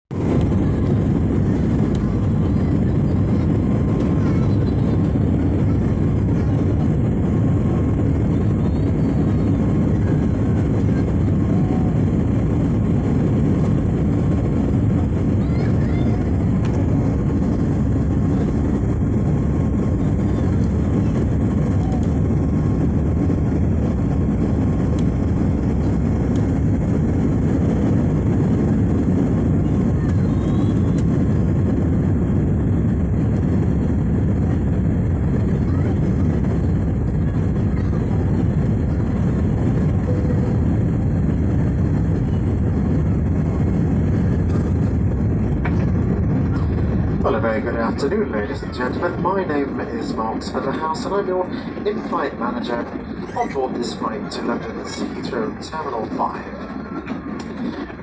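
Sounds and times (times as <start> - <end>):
jet engine and airflow rumble: 0.0 - 58.0.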